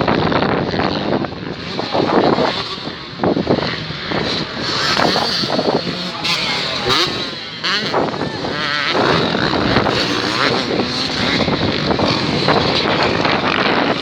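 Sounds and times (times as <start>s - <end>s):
motocross bike engines revving: 0.0s - 14.0s.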